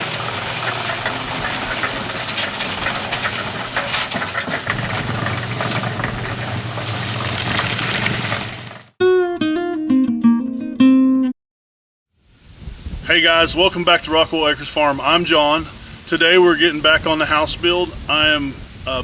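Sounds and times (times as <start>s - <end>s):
scraping rattling clicks: 0.1s - 8.9s.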